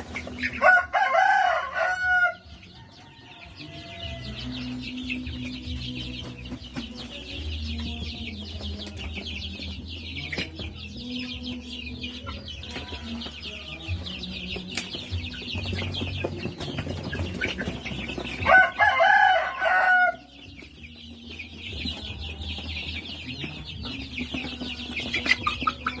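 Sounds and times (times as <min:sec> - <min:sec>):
chickens clucking and chirping: 0:00.0 - 0:26.0
rooster crowing: 0:00.6 - 0:04.4, 0:18.5 - 0:20.3.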